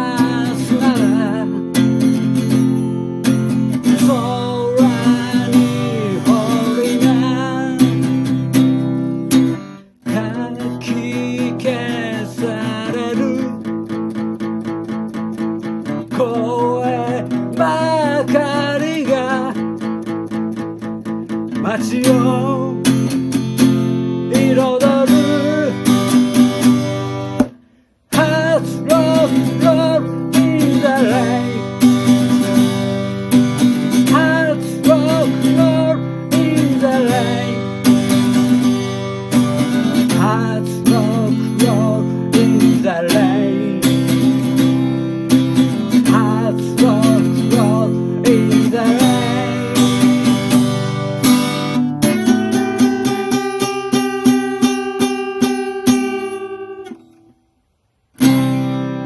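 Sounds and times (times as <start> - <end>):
strummed acoustic guitar: 0.0 - 59.0.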